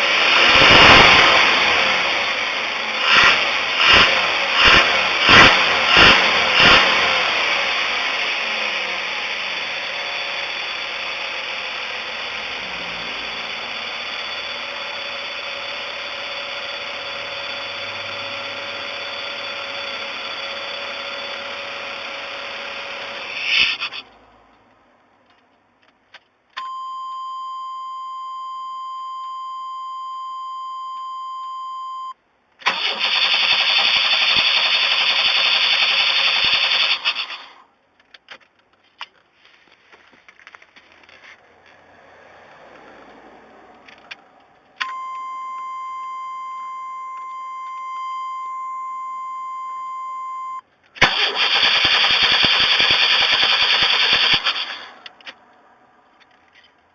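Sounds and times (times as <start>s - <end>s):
electronic warning tone: 12.5s - 21.4s
starter cranking engine: 32.6s - 37.6s, 51.0s - 55.4s.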